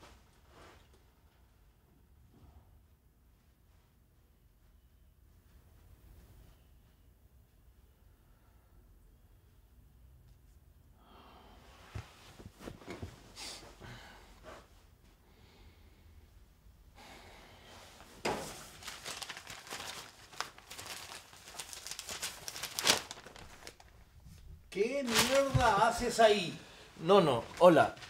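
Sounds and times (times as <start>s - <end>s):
movement sounds on couch: 11.6s - 15.2s
newspaper pages rustling: 18.2s - 28.0s.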